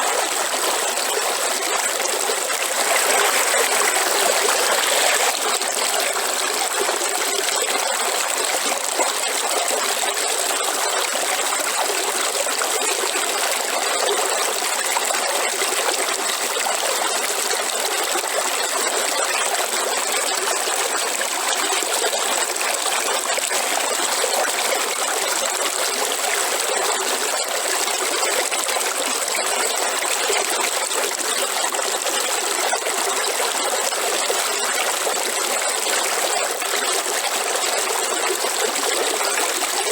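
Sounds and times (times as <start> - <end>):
waterfall rushing: 2.7 - 5.4.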